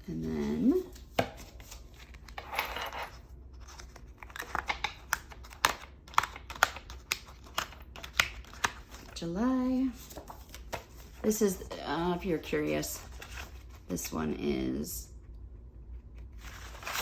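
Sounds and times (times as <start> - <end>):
paper pages rustling: 0.1 - 2.4, 3.5 - 14.0, 16.1 - 17.0
pages clicking onto binding discs: 3.7 - 9.1.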